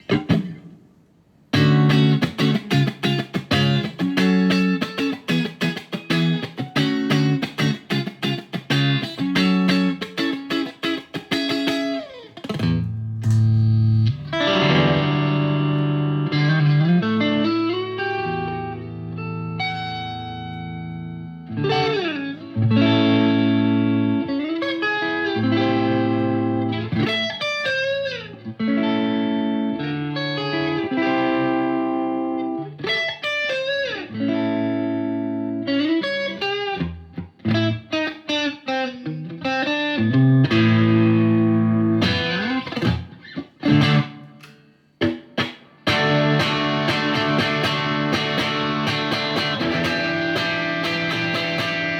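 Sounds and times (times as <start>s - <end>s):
electric guitar through amplifier: 0.0s - 51.9s.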